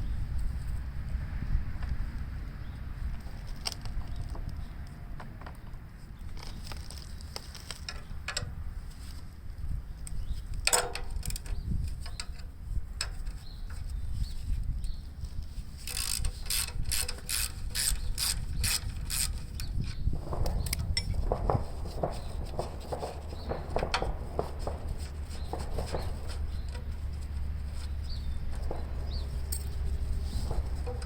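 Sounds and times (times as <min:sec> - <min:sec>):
steady low hum: 0:08.1 - 0:31.0
socket ratchet clicking: 0:15.9 - 0:19.5
metal clinks: 0:28.5 - 0:31.0.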